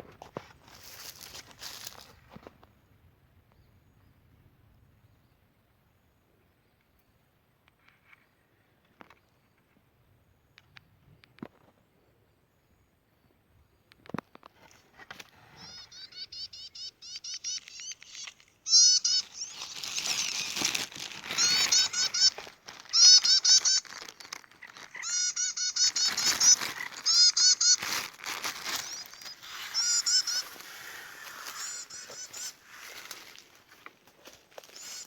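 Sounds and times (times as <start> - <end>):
bird calling harsh notes: 15.5 - 33.7, 34.4 - 35.0.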